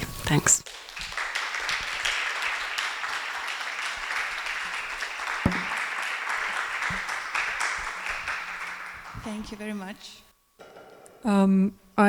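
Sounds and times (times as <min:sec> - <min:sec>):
audience applauding: 0:00.6 - 0:09.8
loud knock: 0:05.5 - 0:05.9.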